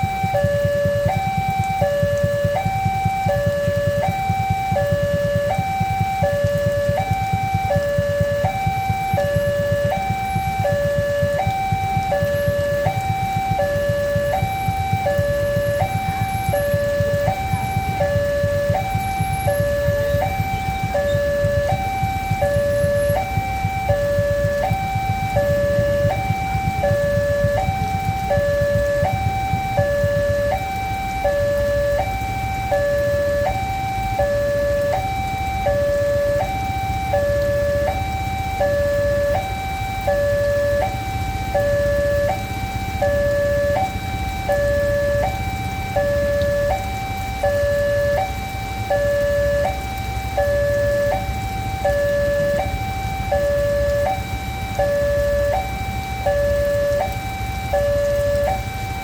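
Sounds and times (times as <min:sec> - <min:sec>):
level crossing two-note alarm: 0:00.0 - 0:59.0.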